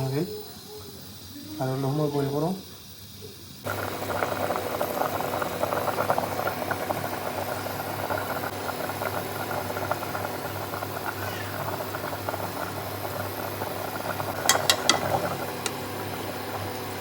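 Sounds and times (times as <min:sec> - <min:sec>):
stew bubbling at a boil: 0:03.6 - 0:17.0.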